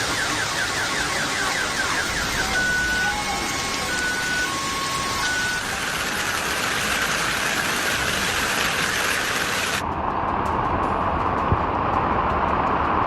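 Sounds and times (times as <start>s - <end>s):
car alarm alternating tones: 0.0s - 6.5s
loud steady rushing noise: 0.0s - 13.0s.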